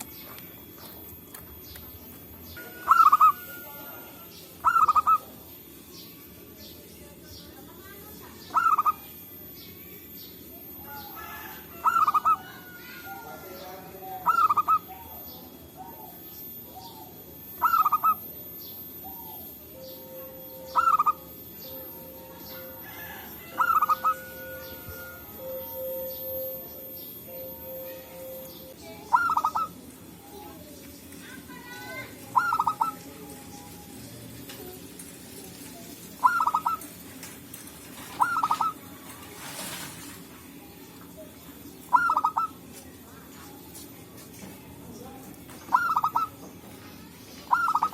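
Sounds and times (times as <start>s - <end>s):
dove cooing: 2.6s - 5.7s, 8.4s - 9.4s, 10.4s - 30.6s, 31.4s - 40.1s, 41.9s - 42.7s, 45.6s - 46.4s, 47.4s - 47.9s.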